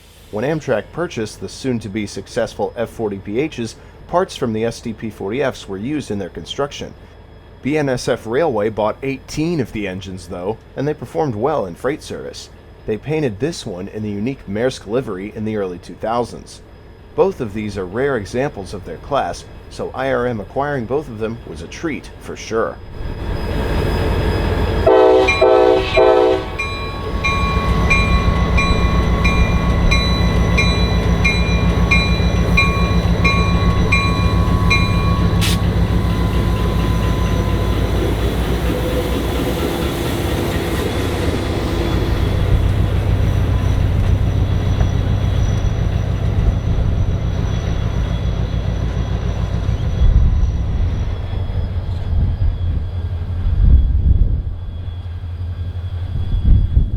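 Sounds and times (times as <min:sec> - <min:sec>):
diesel locomotives running: 0:00.0 - 0:56.9
train bell ringing: 0:22.9 - 0:52.0
locomotive horn blasts: 0:24.8 - 0:36.8.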